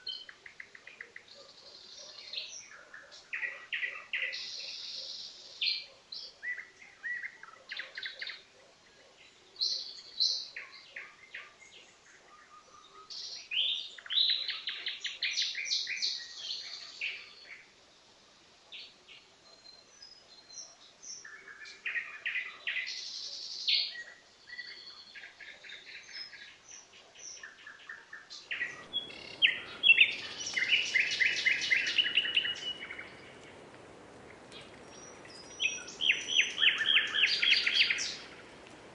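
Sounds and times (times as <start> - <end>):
nightingale singing: 0.0 - 17.8, 18.7 - 38.9
steady background hiss: 0.0 - 38.9.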